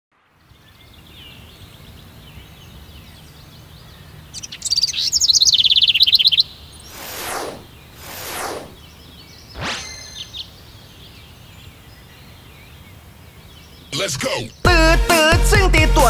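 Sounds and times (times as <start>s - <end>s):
birds chirping: 0.3s - 14.8s
downward swoosh: 6.9s - 8.8s, 9.6s - 10.4s.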